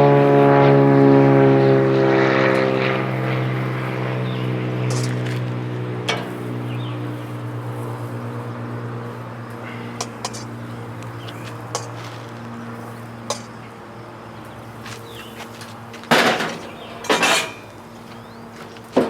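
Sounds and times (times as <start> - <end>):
low engine drone: 0.0 - 19.0
metal utensils clinking: 10.0 - 10.5, 11.7 - 12.0, 16.2 - 17.7.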